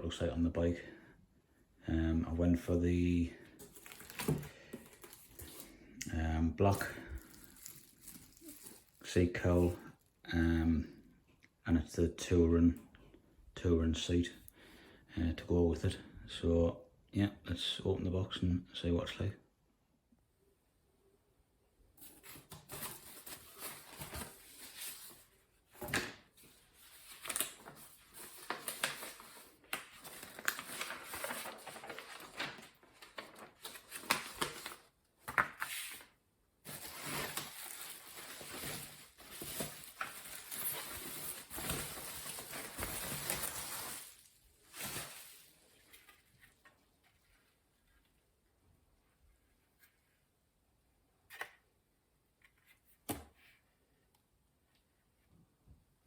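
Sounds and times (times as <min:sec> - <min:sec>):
packaging rustling and crinkling: 0:03.5 - 0:05.8, 0:06.6 - 0:10.3, 0:22.0 - 0:47.6.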